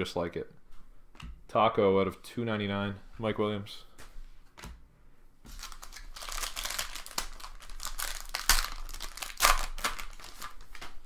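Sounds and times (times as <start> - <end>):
card packaging crinkling: 5.5 - 11.0.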